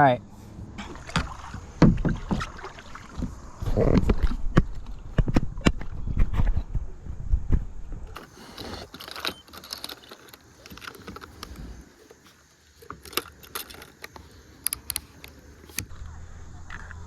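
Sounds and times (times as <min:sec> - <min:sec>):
metallic clinks and rattles: 0:08.2 - 0:11.8.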